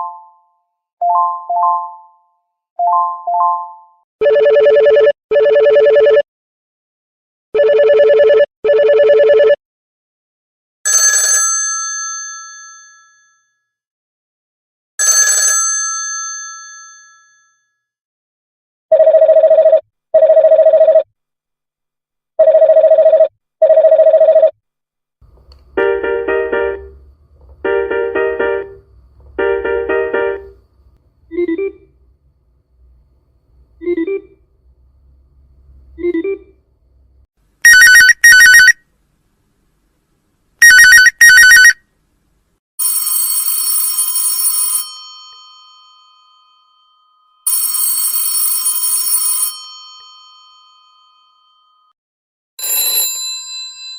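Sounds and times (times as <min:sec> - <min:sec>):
telephone bell ringing: 0:02.9 - 0:06.2, 0:07.6 - 0:09.6, 0:10.9 - 0:13.0, 0:15.0 - 0:17.2, 0:18.9 - 0:21.0, 0:22.4 - 0:24.5, 0:37.6 - 0:38.8, 0:40.6 - 0:41.8, 0:42.8 - 0:51.9, 0:52.6 - 0:53.9
long telephone rings: 0:04.2 - 0:06.2, 0:07.6 - 0:09.4, 0:10.9 - 0:13.0, 0:15.0 - 0:17.5, 0:37.6 - 0:38.8, 0:40.6 - 0:41.8, 0:42.8 - 0:51.9, 0:52.6 - 0:53.9
low hum: 0:25.3 - 0:37.3
telephone double ring: 0:42.8 - 0:45.1, 0:47.4 - 0:50.2, 0:52.6 - 0:53.9.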